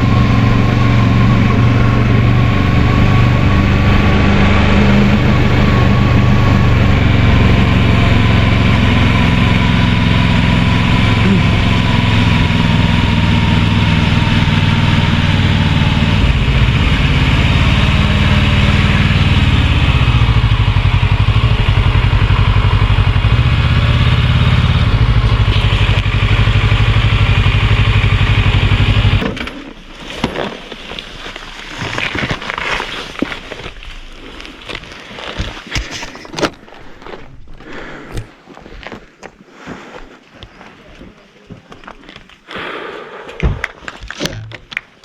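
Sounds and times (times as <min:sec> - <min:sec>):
motorcycle engine idling: 0:05.1 - 0:29.2
rustling: 0:29.4 - 0:42.5.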